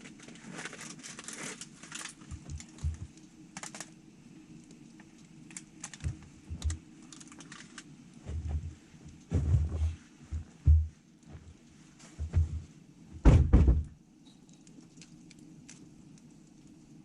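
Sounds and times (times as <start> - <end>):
campfire crackling: 0.0 - 9.3, 14.3 - 17.0
fire pops and snaps: 0.0 - 9.3, 14.4 - 17.0
dull low thumps: 8.3 - 11.4, 12.2 - 14.0.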